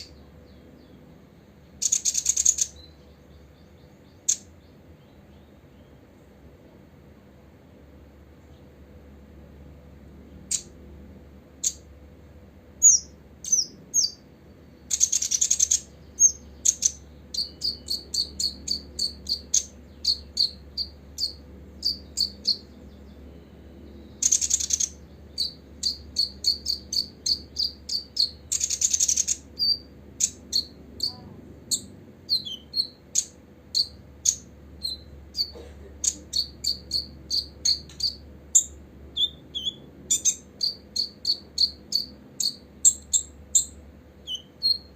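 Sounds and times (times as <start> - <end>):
bird chirping high: 0.0 - 6.0, 10.4 - 10.8, 11.6 - 11.9, 12.8 - 44.9
harsh buzzy bird call: 24.1 - 43.6.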